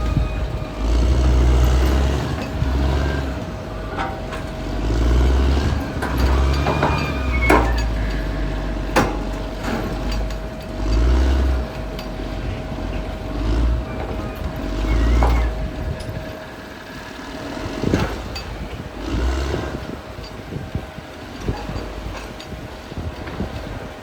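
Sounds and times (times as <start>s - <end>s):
sharp metallic knocks: 0.0s - 12.2s
bulldozer diesel engine rumbling: 0.0s - 24.0s
steady whine: 0.0s - 24.0s.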